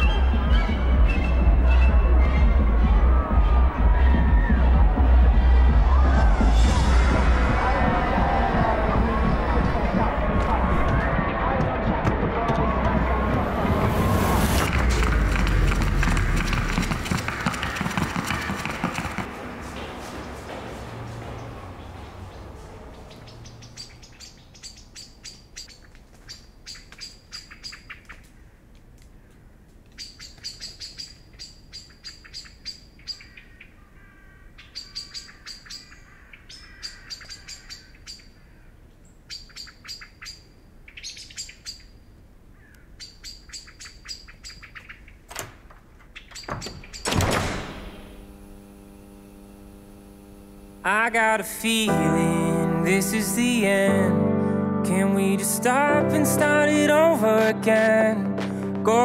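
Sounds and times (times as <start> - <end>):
loud whoosh: 12.9 - 17.0
bird chirping in rapid trills: 23.1 - 28.2, 30.0 - 33.8, 34.6 - 38.5, 39.1 - 42.2, 42.9 - 45.3, 46.1 - 47.1
low hum of several tones: 47.1 - 52.3.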